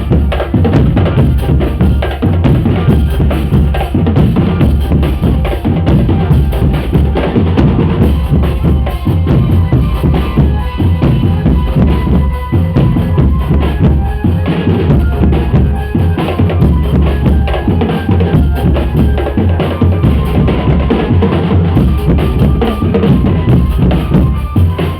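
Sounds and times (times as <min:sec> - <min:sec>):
bass drum beats: 0:00.0 - 0:24.9
drum band playing: 0:00.0 - 0:24.9.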